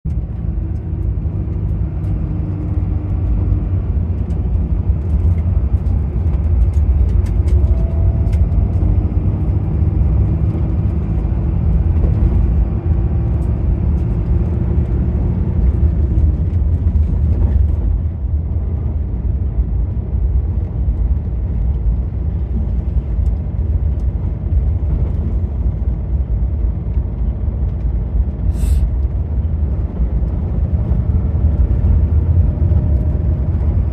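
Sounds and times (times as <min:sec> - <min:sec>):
moving vehicle rumble: 0:00.0 - 0:33.9
brief hiss: 0:28.5 - 0:28.8.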